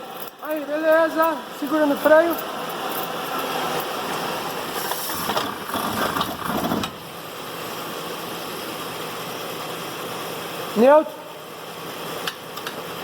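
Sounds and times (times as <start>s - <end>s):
rattling drivetrain noise: 4.7s - 7.1s.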